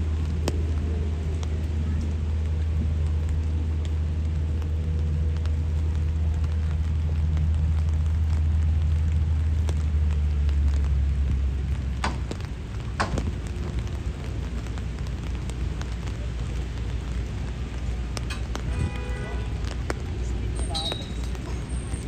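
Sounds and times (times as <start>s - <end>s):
passing traffic rumble: 0.0s - 22.0s
rain falling on street: 0.0s - 22.0s
sharp knocks: 12.0s - 12.4s, 13.0s - 13.3s.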